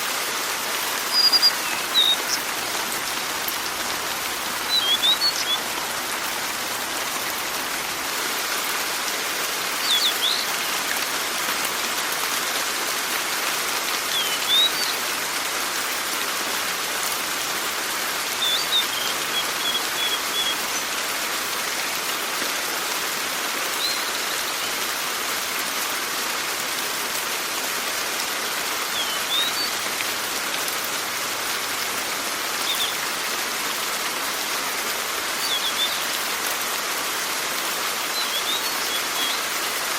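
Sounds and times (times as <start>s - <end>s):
steady rain falling: 0.0s - 39.9s
bird chirping: 1.1s - 3.2s, 4.5s - 5.6s, 35.4s - 36.0s.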